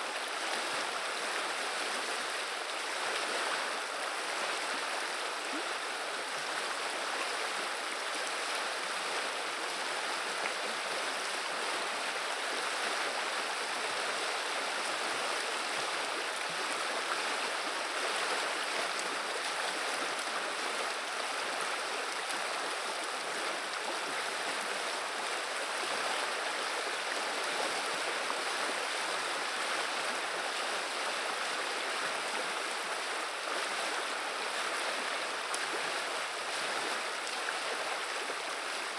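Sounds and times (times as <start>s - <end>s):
river water babbling: 0.0s - 38.9s.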